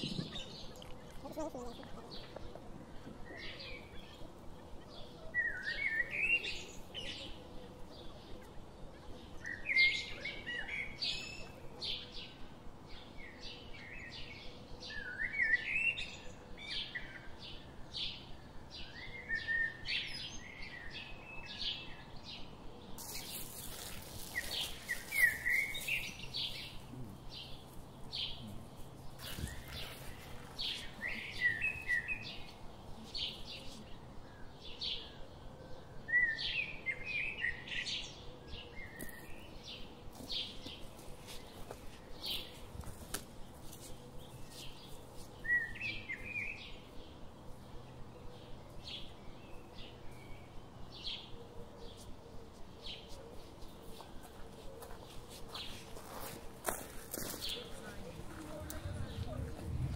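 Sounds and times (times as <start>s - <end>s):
birds chirping and singing: 0.0s - 59.9s
noisy rustles: 23.0s - 33.9s, 53.4s - 59.9s.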